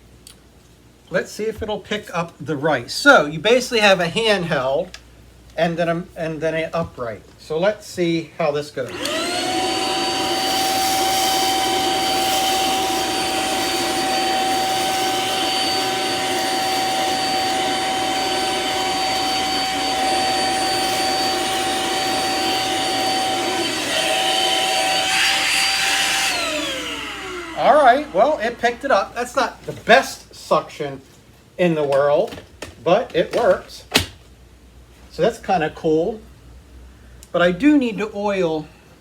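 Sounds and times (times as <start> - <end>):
vacuum sucking up rice: 8.9 - 28.9
vacuum cleaner running: 8.9 - 29.5.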